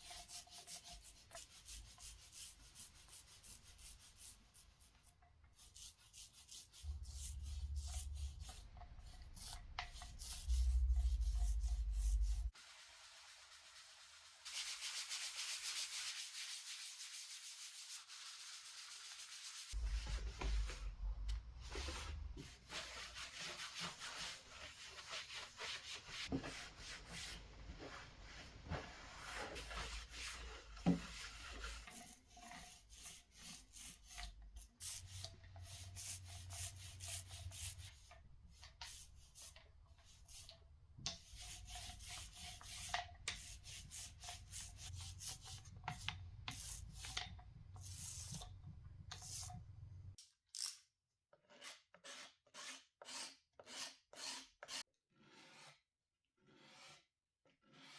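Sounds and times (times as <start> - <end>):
sanding plywood: 41.1 - 48.4.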